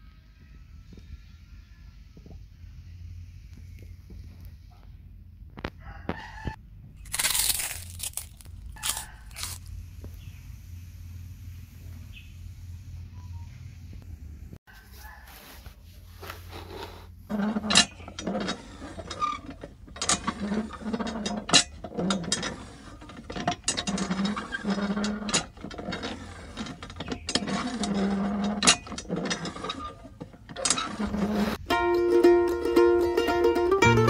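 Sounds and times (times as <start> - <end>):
rough scraping: 6.4 - 10.4, 14.7 - 31.7.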